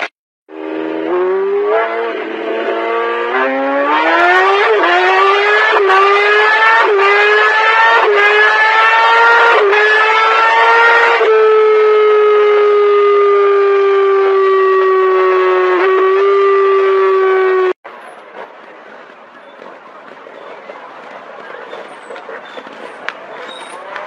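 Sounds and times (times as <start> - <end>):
high-revving engine accelerating: 0.0 - 24.0.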